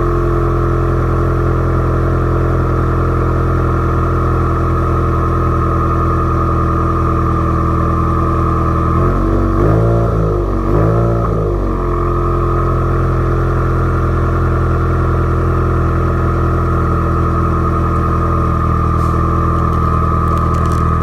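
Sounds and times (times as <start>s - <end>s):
car engine idling: 0.0s - 21.0s
engine revving: 7.0s - 21.0s.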